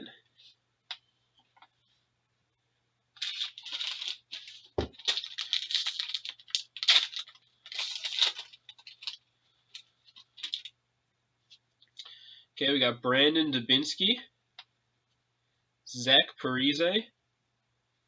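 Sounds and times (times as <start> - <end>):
wrapper crinkling and rustling: 3.2 - 10.7.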